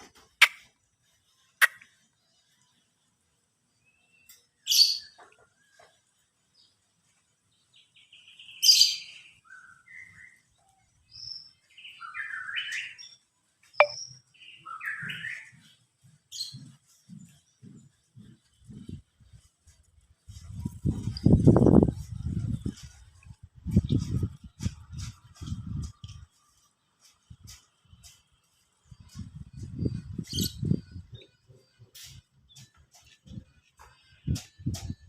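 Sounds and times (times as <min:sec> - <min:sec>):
songbird chirping and whistling: 0:08.1 - 0:13.2, 0:13.8 - 0:15.8, 0:29.0 - 0:33.2.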